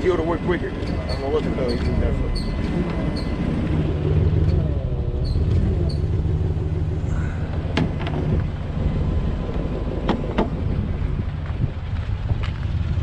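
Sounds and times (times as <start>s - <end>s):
truck engine running: 0.0s - 13.0s
sharp metallic knocks: 0.5s - 3.6s.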